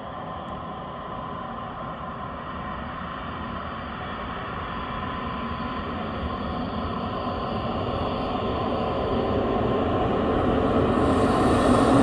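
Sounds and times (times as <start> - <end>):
train rumble: 9.2 - 12.0.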